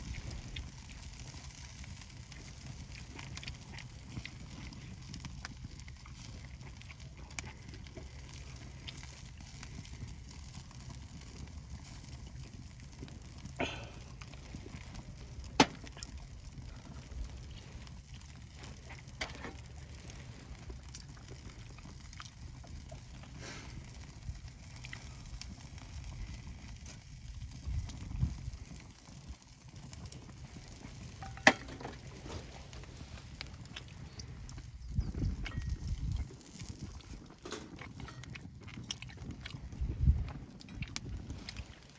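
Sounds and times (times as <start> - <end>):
campfire crackling pops: 0.0 - 41.9
campfire low rumble: 0.0 - 41.9.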